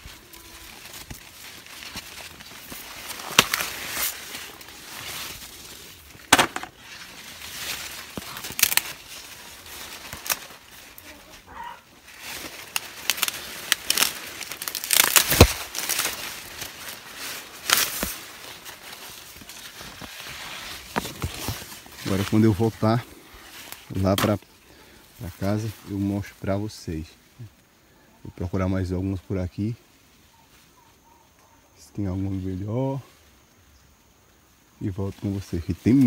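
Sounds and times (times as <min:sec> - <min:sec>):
corn leaves rustling and crackling: 0:00.0 - 0:36.0
corn ears snapping off stalks: 0:00.6 - 0:11.2, 0:12.1 - 0:22.8, 0:23.5 - 0:24.4.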